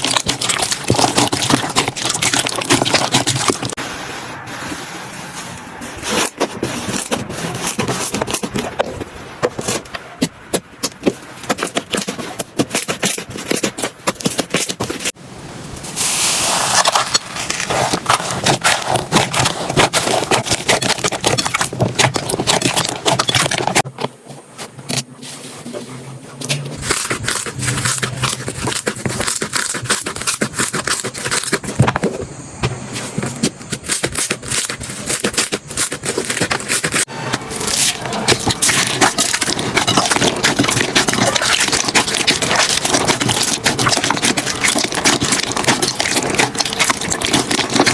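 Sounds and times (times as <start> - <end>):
slime crackling and popping: 0.0 - 3.8, 37.7 - 47.9
short hiss: 15.8 - 16.8.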